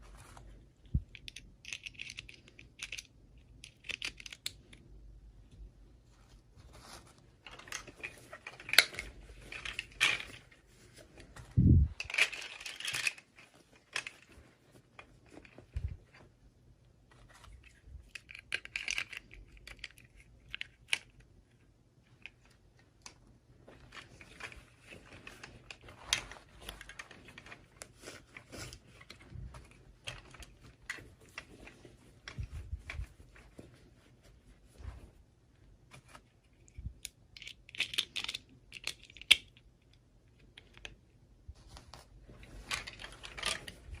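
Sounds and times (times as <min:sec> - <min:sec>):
plastic pieces clicking and tapping: 0:00.9 - 0:04.9, 0:17.6 - 0:23.2, 0:36.6 - 0:41.1.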